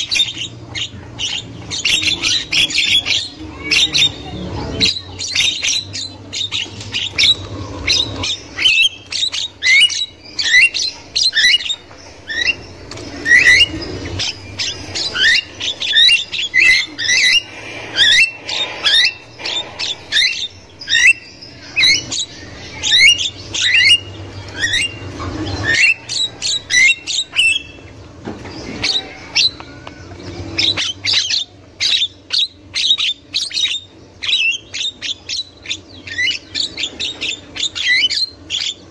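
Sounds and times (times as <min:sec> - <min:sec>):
myna chattering and squawking: 0:00.0 - 0:38.9.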